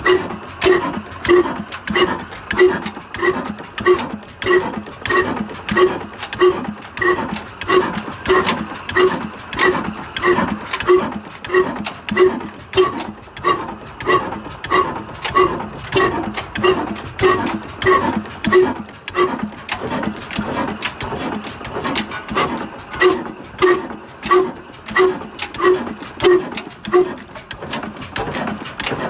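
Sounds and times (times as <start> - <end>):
diesel engine running slowly: 0.0 - 29.0
exhaust chuffing: 0.0 - 29.0.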